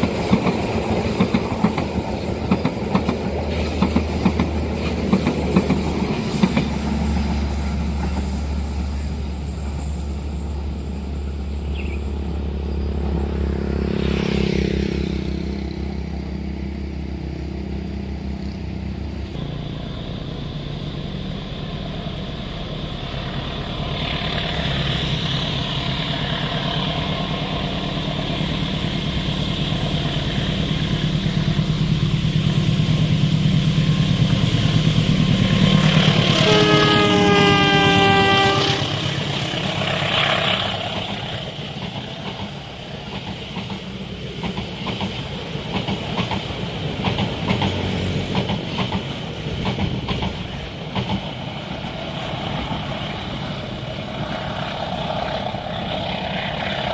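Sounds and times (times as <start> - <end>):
wheels clacking over rail joints: 0.0 - 10.2, 33.8 - 56.9
train engine passing: 0.0 - 56.9
train horn: 35.7 - 40.8.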